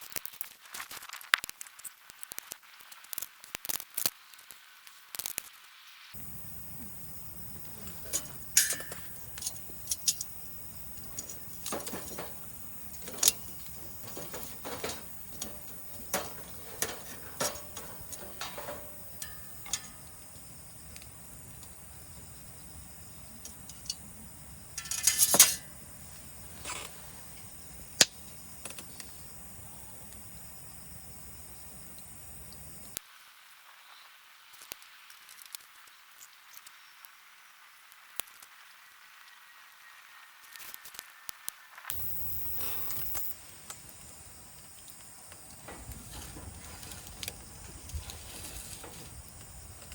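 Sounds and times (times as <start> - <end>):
metal camp gear clinking: 6.2 - 20.6, 23.2 - 27.5, 43.7 - 49.9.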